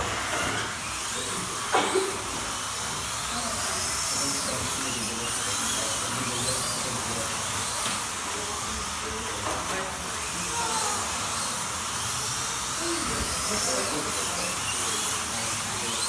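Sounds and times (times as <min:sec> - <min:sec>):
slot car motors whining: 0:00.0 - 0:16.0.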